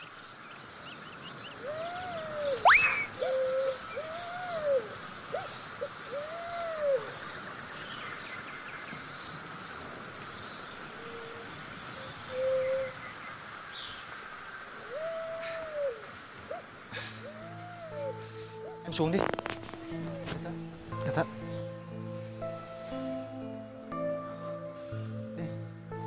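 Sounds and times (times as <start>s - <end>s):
background hiss: 0.0s - 26.0s
bird low rising and falling call: 0.9s - 14.0s, 14.7s - 20.8s.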